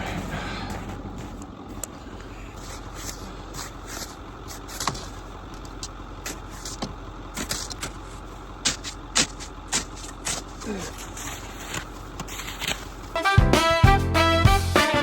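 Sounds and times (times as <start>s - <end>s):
paddle scraping snow: 2.6s - 5.2s, 8.8s - 13.2s.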